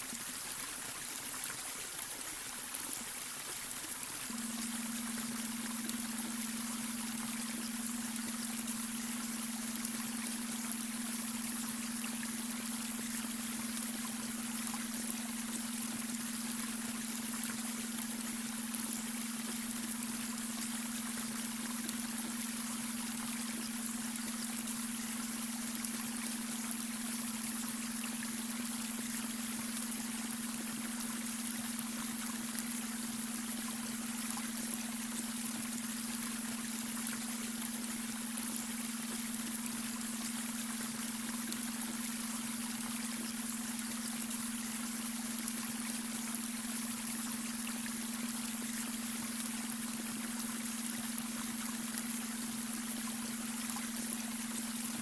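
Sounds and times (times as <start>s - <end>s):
water trickling over stones: 0.0s - 55.0s
low hum-like tone: 3.8s - 55.0s.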